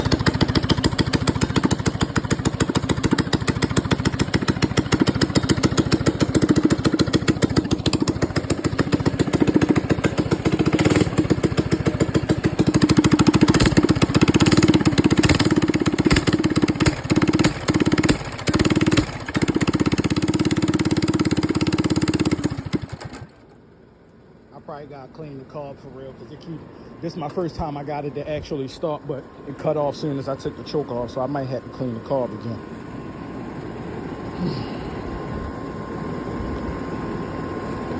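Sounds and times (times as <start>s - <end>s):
small motorbike engine stumbling: 0.0s - 23.5s, 33.5s - 37.9s.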